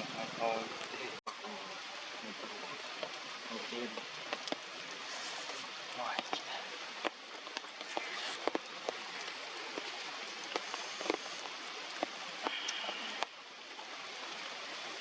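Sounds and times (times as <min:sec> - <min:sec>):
rain falling: 0:00.0 - 0:15.0
drops dripping on surfaces: 0:03.9 - 0:14.5.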